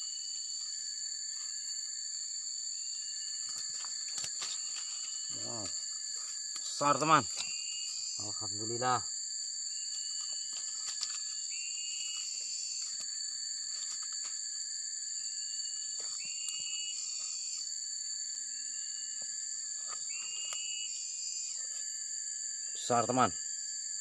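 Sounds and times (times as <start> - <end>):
insects droning: 0.0 - 24.0
rising insect call: 0.0 - 24.0.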